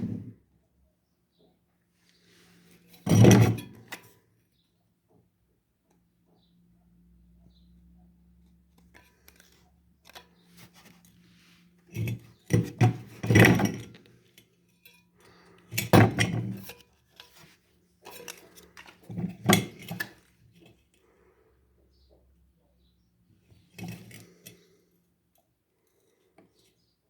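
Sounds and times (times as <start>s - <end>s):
handling noise scraping and clinking: 0.0s - 0.4s, 2.2s - 4.2s, 8.5s - 21.4s, 23.4s - 24.9s.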